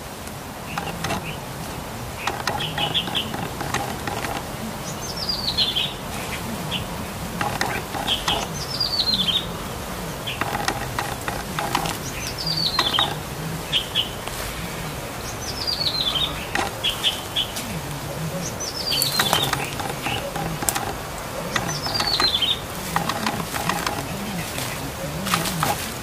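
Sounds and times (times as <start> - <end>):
birds chirping: 0.0 - 26.0
sharp clicks: 0.2 - 5.8, 7.3 - 9.4, 10.2 - 13.4, 15.7 - 17.1, 18.7 - 26.0
wing flutters: 0.6 - 26.0.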